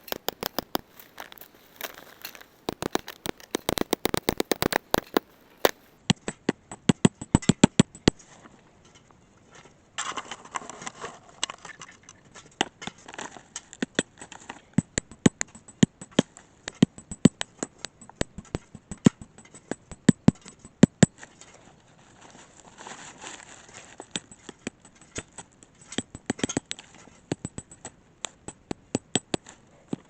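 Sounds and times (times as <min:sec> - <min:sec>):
rustling scrape: 0:00.0 - 0:05.9, 0:21.4 - 0:24.1
sharp knocks and clicks: 0:00.0 - 0:05.9.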